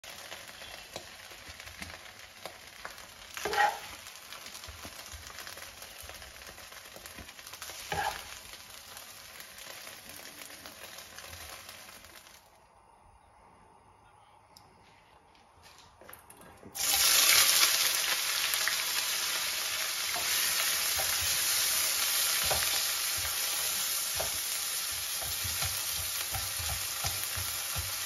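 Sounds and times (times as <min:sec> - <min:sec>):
stir-fry sizzling in pan: 0:00.0 - 0:12.5, 0:16.8 - 0:28.0
metal spoon scraping pan: 0:07.9 - 0:08.3.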